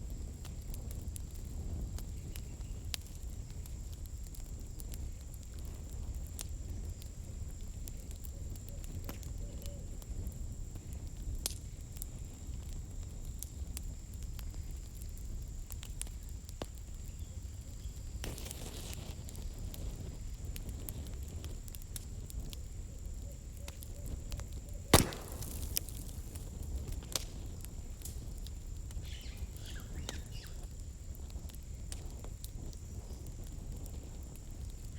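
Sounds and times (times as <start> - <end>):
campfire crackling: 0.0 - 34.9
loud fire pop: 18.2 - 19.1, 24.9 - 28.2.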